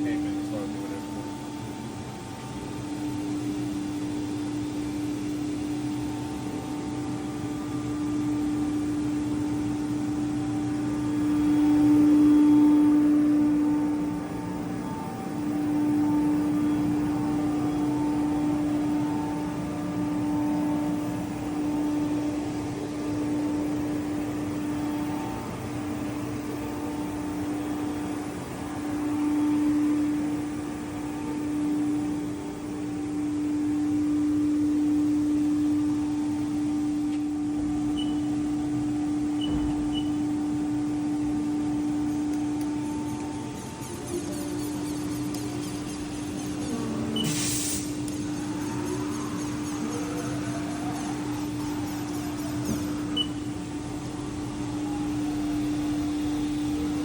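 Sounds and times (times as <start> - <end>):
milling machine humming: 0.0 - 57.0
short high beeps: 38.0 - 38.3.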